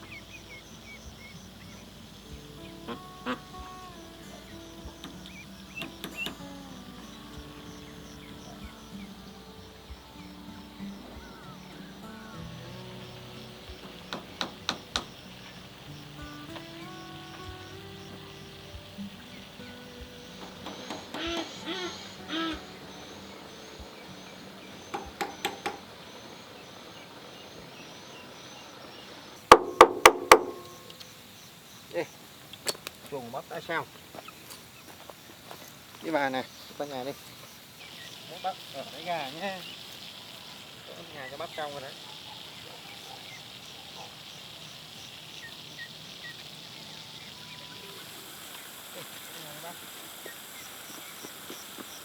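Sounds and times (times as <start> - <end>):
faint high chirping: 0.0 - 35.0, 35.6 - 52.0
high insect drone: 0.0 - 52.0
hammer blows: 20.4 - 22.7, 29.5 - 31.0.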